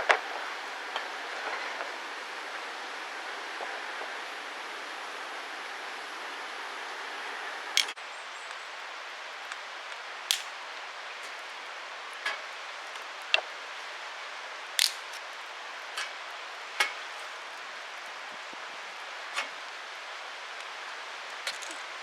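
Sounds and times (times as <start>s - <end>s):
steady hiss: 7.8s - 22.0s
wood fire crackling: 10.3s - 19.0s.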